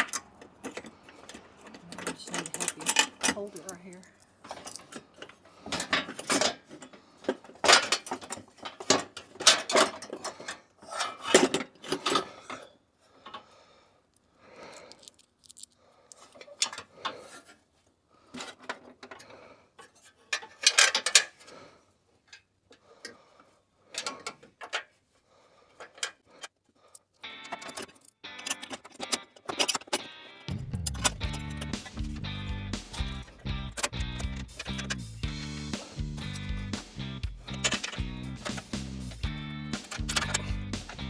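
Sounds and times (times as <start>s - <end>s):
metal parts clattering: 0.0s - 12.2s.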